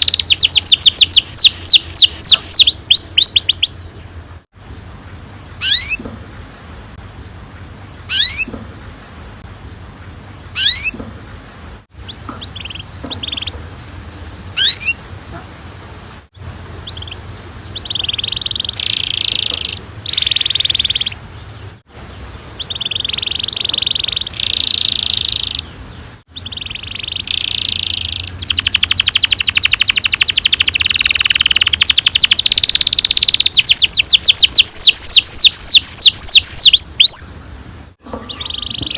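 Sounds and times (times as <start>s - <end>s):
canary singing: 0.0s - 4.1s, 5.6s - 6.1s, 8.0s - 8.6s, 10.6s - 11.0s, 12.0s - 13.7s, 14.5s - 15.2s, 16.7s - 37.4s, 38.1s - 38.9s.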